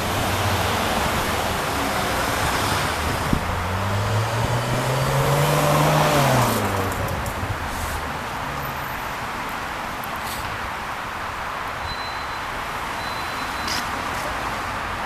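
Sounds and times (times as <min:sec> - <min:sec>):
motor vehicle passing: 0:00.0 - 0:08.0.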